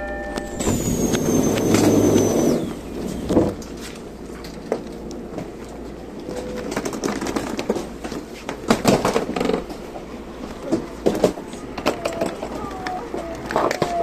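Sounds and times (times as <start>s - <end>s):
short steady tone: 0.0s - 2.7s.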